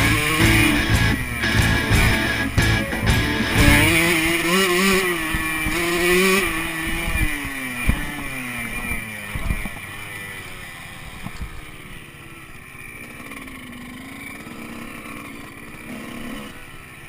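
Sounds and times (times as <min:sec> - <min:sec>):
thumps from the track: 0:00.0 - 0:04.3
motocross bike engine: 0:00.0 - 0:17.0.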